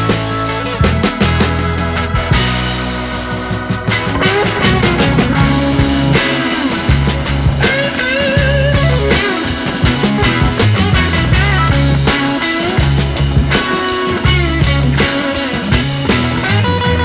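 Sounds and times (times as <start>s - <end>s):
rock music with drums and bass: 0.0s - 17.0s
lead guitar bending pitch: 3.7s - 17.0s.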